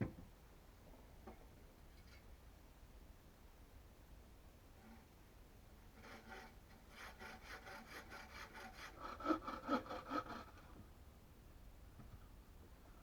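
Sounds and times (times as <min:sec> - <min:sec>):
hand saw cutting wood: 0:05.9 - 0:10.7.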